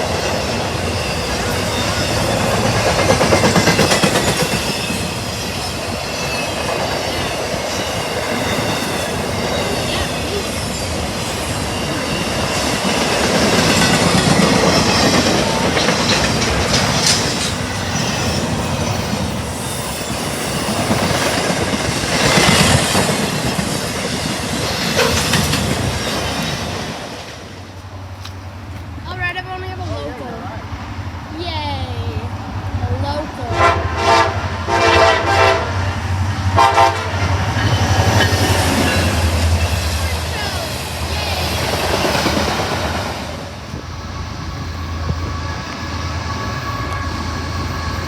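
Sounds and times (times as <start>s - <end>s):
high wheel squeal: 0.0s - 26.7s, 37.5s - 48.0s
wheels clacking over rail joints: 0.0s - 29.5s.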